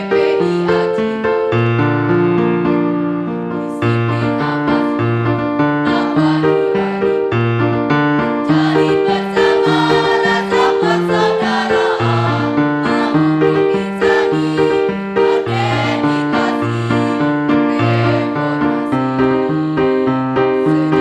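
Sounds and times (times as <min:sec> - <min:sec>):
choir singing a march: 0:05.9 - 0:06.9, 0:08.5 - 0:17.2, 0:17.8 - 0:18.9.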